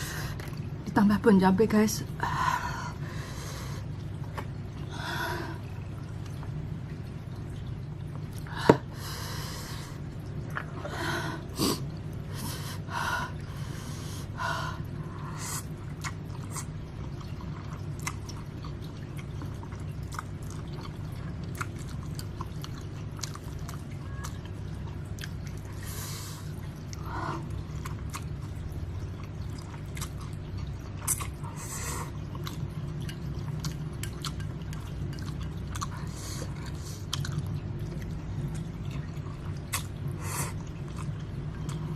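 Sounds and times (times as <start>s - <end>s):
steady low hum: 0.0s - 41.9s
person chewing noodles: 14.8s - 41.9s.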